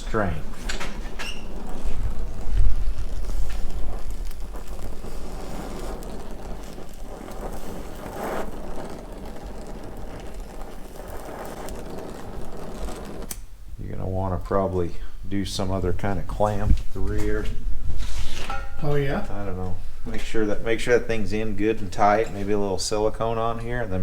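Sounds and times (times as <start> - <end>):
gas torch flame rushing: 0.0 - 14.2, 15.0 - 18.6.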